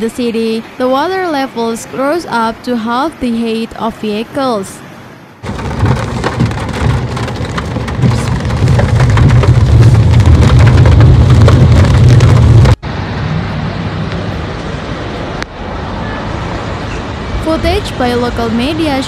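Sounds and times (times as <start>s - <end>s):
heavy rain on car roof: 5.4s - 12.8s
steady rushing noise: 5.4s - 15.8s.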